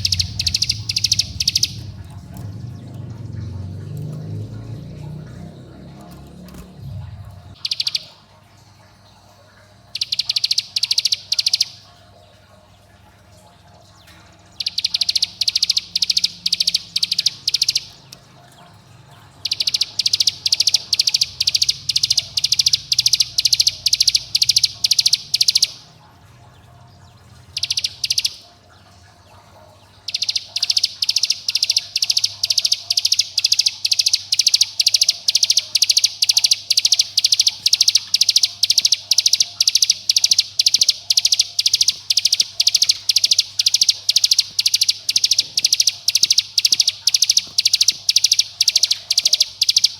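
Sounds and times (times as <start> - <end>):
bird calling sharp repeated notes: 0.0 - 4.5, 7.5 - 8.3, 9.9 - 11.9, 14.6 - 18.3, 19.3 - 25.9, 27.5 - 28.6, 30.0 - 49.9.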